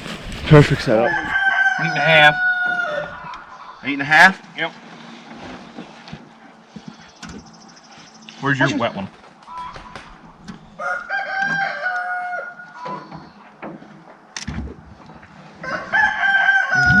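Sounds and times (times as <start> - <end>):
rooster crowing: 0.9 - 3.8, 10.7 - 13.1, 15.6 - 17.0.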